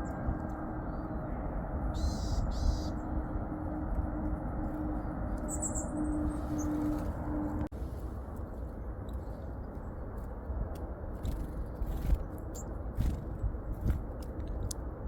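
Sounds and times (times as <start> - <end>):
small songbirds chirping: 0.0 - 3.4, 4.6 - 7.6.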